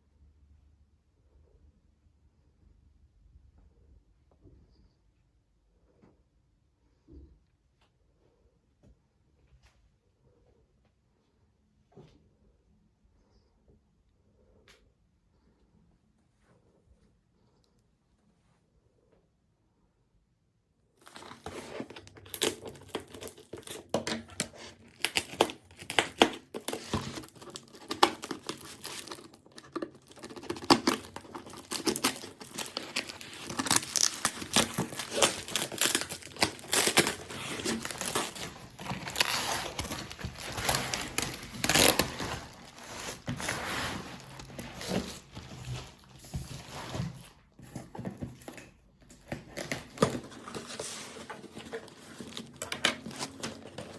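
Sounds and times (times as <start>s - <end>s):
packaging tearing: 21.0s - 47.1s, 49.2s - 53.9s
packaging crinkling and rustling: 21.0s - 53.9s.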